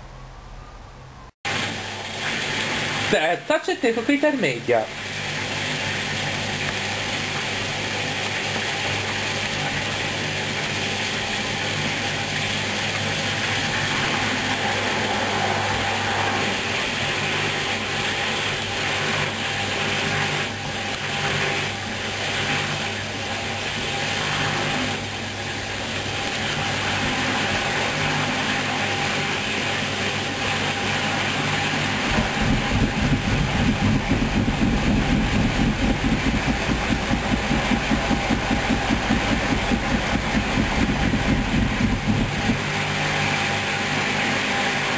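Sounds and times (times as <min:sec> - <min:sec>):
washing machine running: 0:01.4 - 0:44.9
throbbing low sound: 0:32.1 - 0:42.6.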